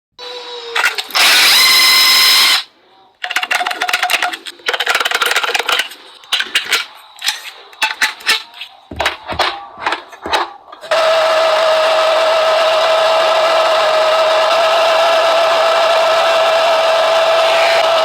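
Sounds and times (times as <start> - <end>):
power tool whirring: 0.2 - 18.0
clicks and knocks of handwork: 3.2 - 10.9.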